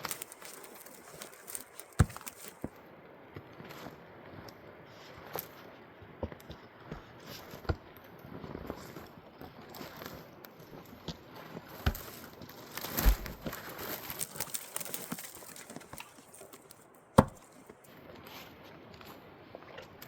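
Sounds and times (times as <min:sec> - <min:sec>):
knocks and thuds: 0:00.3 - 0:02.6, 0:17.2 - 0:17.5.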